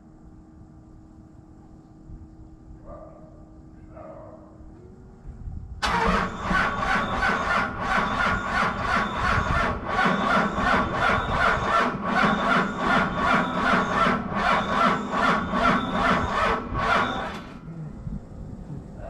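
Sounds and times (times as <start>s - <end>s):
diesel engine starter cranking: 5.8s - 17.7s.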